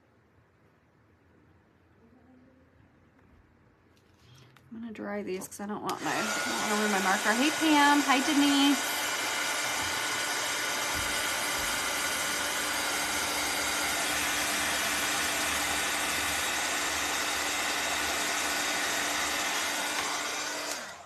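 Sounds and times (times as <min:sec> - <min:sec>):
hot-air dryer blowing: 0:05.8 - 0:21.0.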